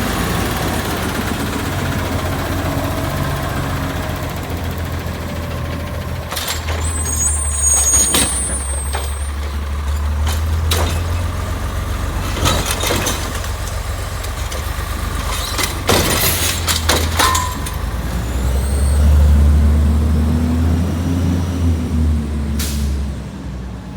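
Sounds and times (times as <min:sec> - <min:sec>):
truck engine rumbling: 0:00.0 - 0:23.9
metal clanks and knocks: 0:05.4 - 0:18.1.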